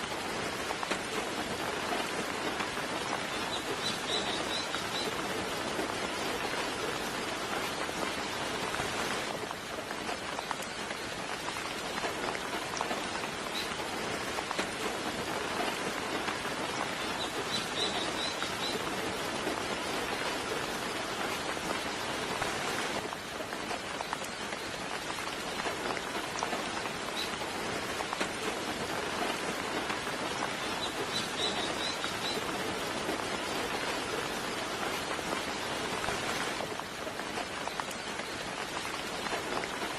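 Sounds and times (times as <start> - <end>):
soft rain falling: 0.0 - 39.9.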